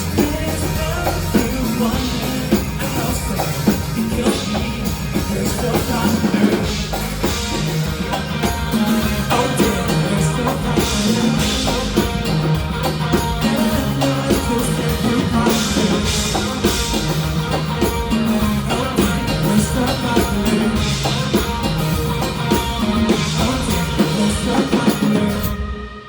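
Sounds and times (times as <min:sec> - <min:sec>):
low bass notes: 0:00.0 - 0:25.6
drum kit: 0:00.0 - 0:26.0
guitar: 0:00.0 - 0:26.0.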